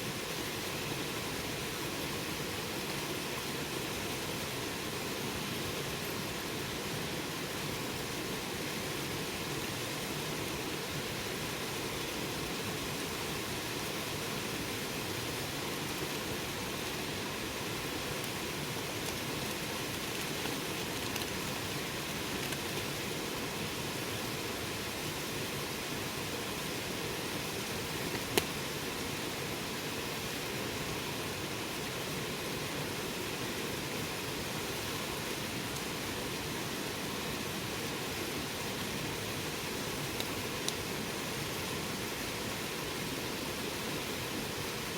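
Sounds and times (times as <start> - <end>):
campfire burning: 11.6 - 29.7, 37.6 - 42.7
fire crackles: 13.1 - 29.6, 38.5 - 42.1
fire popping: 18.2 - 23.0.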